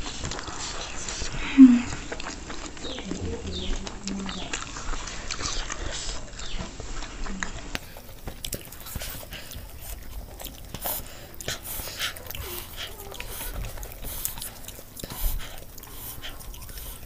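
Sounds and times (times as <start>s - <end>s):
mouth clicks and smacks: 0.0s - 17.0s
people chewing food: 0.0s - 17.0s.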